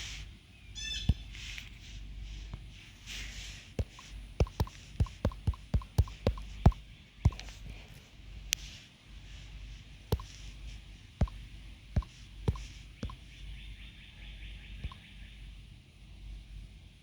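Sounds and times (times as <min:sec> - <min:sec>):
faint steady hiss: 0:00.0 - 0:17.0
sharp short clicks: 0:03.8 - 0:07.6, 0:10.1 - 0:10.5, 0:11.2 - 0:13.2.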